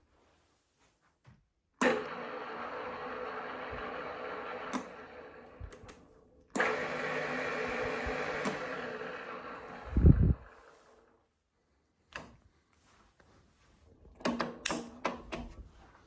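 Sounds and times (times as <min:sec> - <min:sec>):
drill press gear whine: 0:01.8 - 0:11.1.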